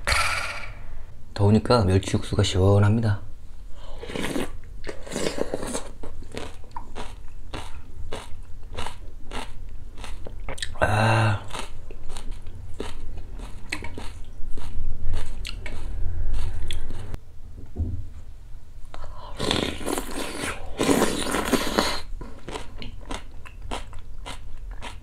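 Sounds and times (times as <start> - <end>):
close-up chewing and crunching: 4.2 - 10.8, 11.4 - 17.1, 19.5 - 25.0
person humming: 10.7 - 11.6.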